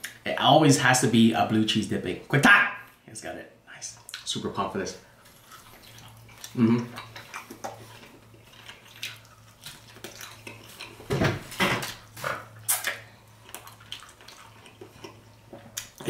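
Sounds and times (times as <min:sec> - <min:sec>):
person chewing wetly: 0:04.0 - 0:04.3, 0:05.1 - 0:16.0.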